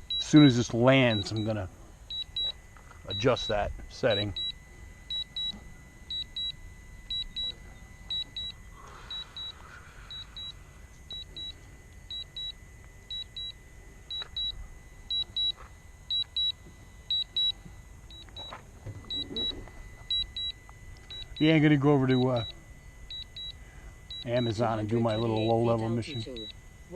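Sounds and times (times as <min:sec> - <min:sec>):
short high double beeps: 0:14.1 - 0:26.6.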